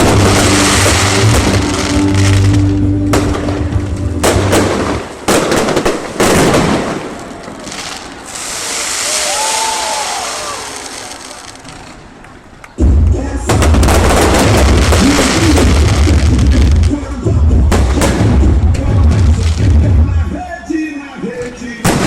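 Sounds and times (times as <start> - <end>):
fireworks crackling hiss: 0.0 - 2.6, 4.4 - 12.2, 13.9 - 17.0
fireworks bangs: 0.0 - 22.0.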